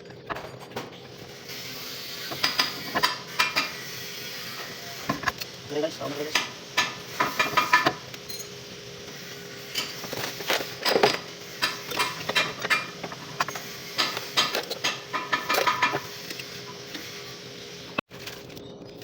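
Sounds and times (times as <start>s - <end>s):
metal tools clinking on metal: 5.2s - 8.6s, 9.7s - 16.8s.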